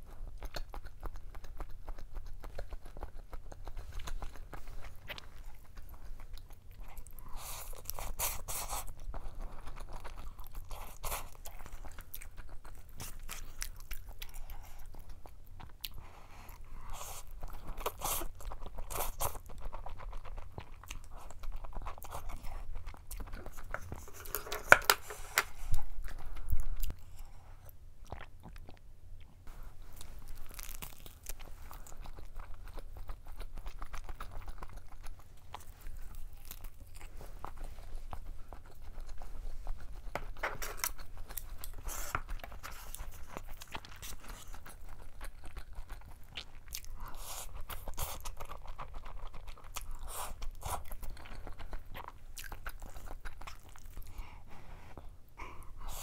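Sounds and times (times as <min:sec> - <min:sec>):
chewing and biting: 0:00.0 - 0:54.2.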